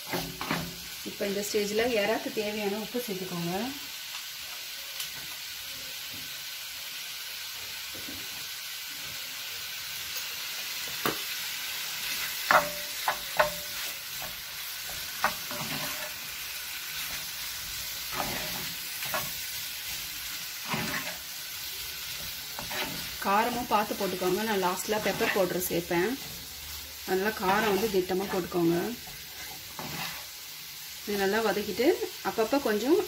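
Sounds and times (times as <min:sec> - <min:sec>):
spatula scraping and knocking pan: 0:00.0 - 0:00.8, 0:12.0 - 0:26.5, 0:27.1 - 0:30.4
prawns sizzling in oil: 0:00.0 - 0:33.0.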